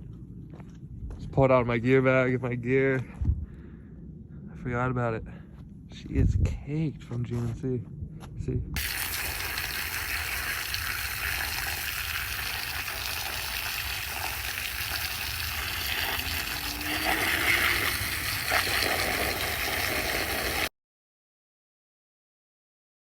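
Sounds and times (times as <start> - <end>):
low rumble: 0.0 - 8.8
water spraying onto gear: 8.8 - 20.7.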